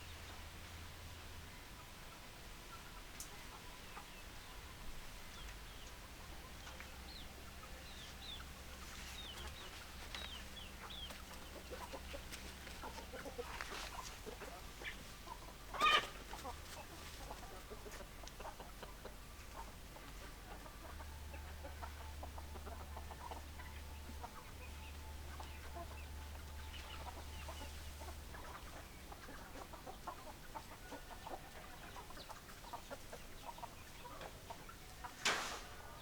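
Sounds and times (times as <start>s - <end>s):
chickens clucking: 1.6s - 36.0s
chicken squawk: 15.7s - 16.5s.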